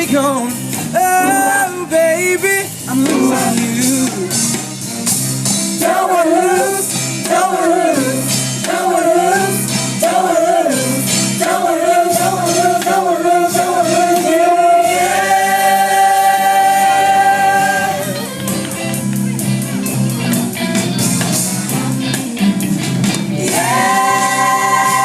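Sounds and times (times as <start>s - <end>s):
band accompaniment: 0.0s - 25.0s
person singing wordless vocal runs: 1.0s - 4.4s.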